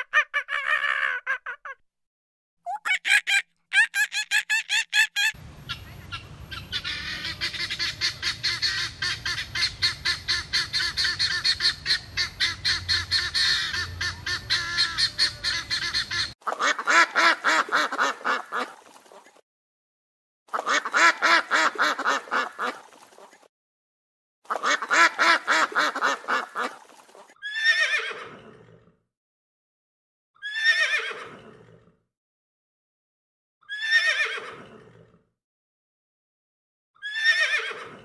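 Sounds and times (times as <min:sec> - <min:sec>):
guinea fowl chattering: 0:05.2 - 0:18.6
duck quacking: 0:05.7 - 0:18.8, 0:20.5 - 0:22.8, 0:24.5 - 0:26.8.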